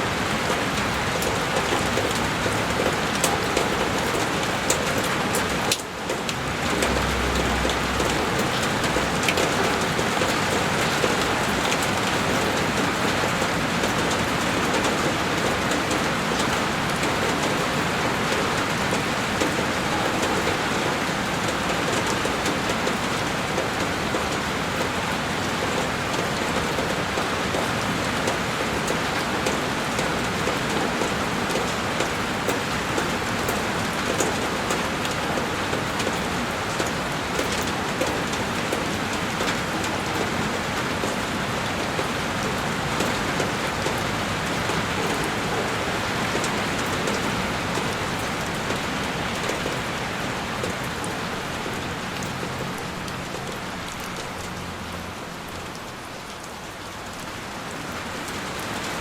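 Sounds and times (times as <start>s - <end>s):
heavy rain on a window: 0.0s - 59.0s.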